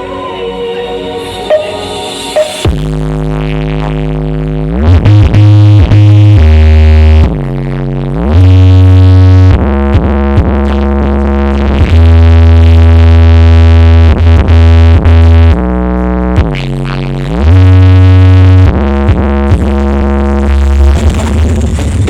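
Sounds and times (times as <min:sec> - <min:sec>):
synthesizer sliding up: 0:00.0 - 0:03.0
heavy bass line: 0:00.0 - 0:22.0
loud electronic dance music: 0:00.0 - 0:22.0.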